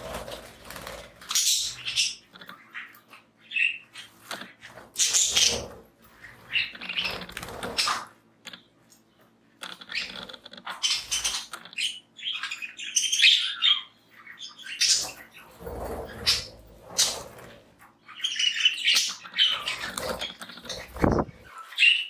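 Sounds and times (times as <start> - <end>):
budgies chirping and chattering: 0.0 - 22.0.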